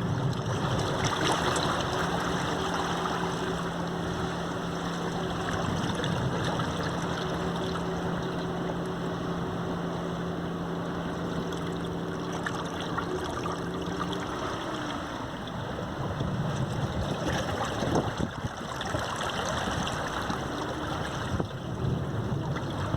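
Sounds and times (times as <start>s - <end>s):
sea waves washing onto beach: 0.0s - 9.1s, 11.2s - 22.9s
motor hum: 0.0s - 22.9s.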